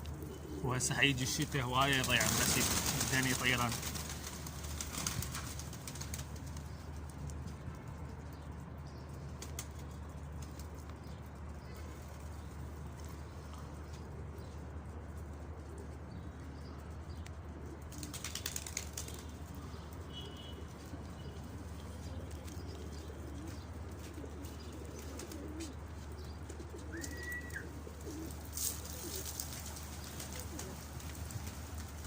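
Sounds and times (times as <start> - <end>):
wings flapping: 1.2 - 7.1, 9.4 - 10.8, 17.9 - 19.5, 26.8 - 32.0
pigeons cooing: 22.0 - 31.4.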